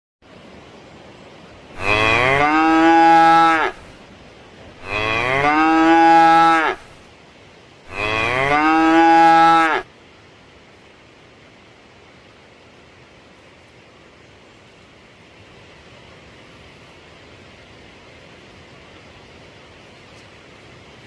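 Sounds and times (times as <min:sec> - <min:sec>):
cow mooing: 0:01.8 - 0:03.9, 0:04.8 - 0:06.9, 0:07.9 - 0:09.8.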